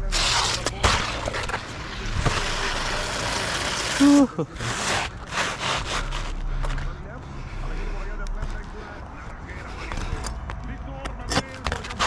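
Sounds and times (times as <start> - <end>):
shingles scraping and rustling: 0.1 - 6.8.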